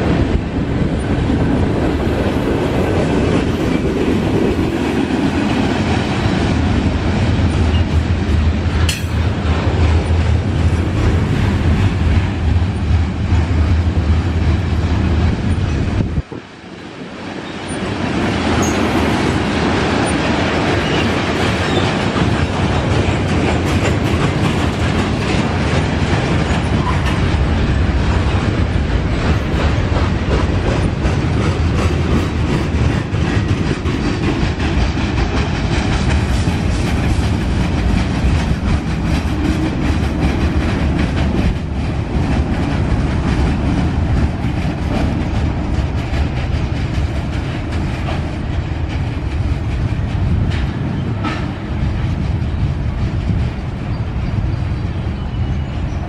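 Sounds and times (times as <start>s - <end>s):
train wheels rumbling on rail: 0.0s - 56.0s
wheels clicking over rail joints: 18.4s - 54.4s.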